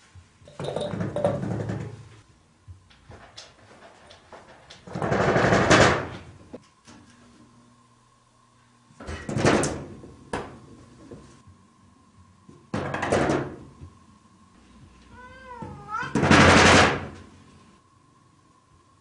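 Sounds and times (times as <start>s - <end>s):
cat meowing: 15.1s - 16.2s.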